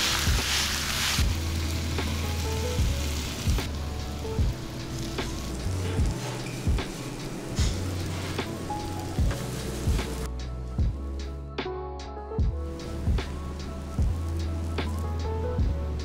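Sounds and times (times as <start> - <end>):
batter sizzling on a griddle: 0.0 - 10.3, 12.8 - 16.0
background music with soft beat: 0.0 - 16.0.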